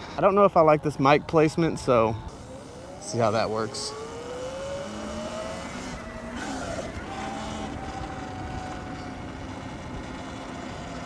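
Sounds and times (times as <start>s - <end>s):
wind and road noise: 0.0s - 11.0s
electric motor whine: 2.2s - 11.0s.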